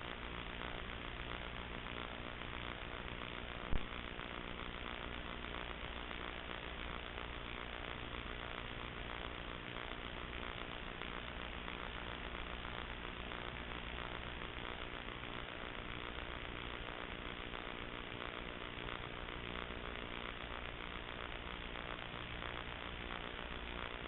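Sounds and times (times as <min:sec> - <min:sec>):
electrical buzz and hiss: 0:00.0 - 0:24.0.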